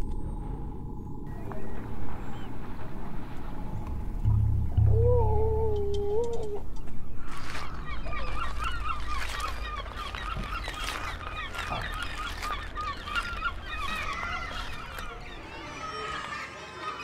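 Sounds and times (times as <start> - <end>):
low steady rumble: 0.0 - 9.0
long wavering tone: 3.8 - 6.9
flock of birds calling: 4.9 - 17.0.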